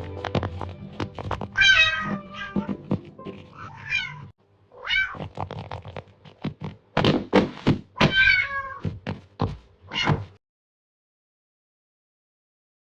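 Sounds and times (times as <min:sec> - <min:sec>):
kitten meowing: 0:01.6 - 0:02.7, 0:03.5 - 0:05.2, 0:08.0 - 0:08.8.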